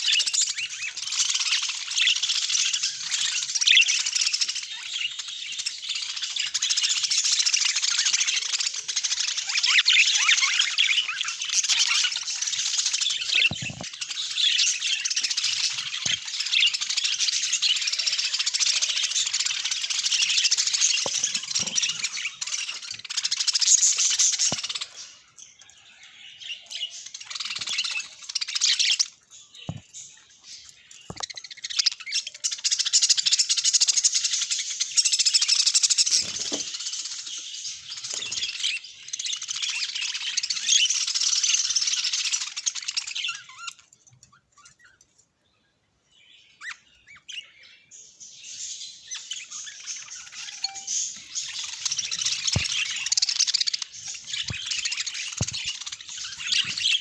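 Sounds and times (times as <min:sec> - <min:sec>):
budgerigars chattering and warbling: 0:00.0 - 0:45.1, 0:46.4 - 0:57.0.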